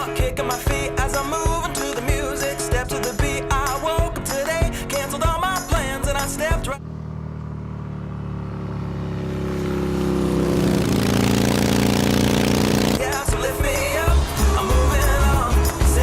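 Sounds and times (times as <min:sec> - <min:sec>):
motorcycle engine approaching: 0:05.8 - 0:16.0.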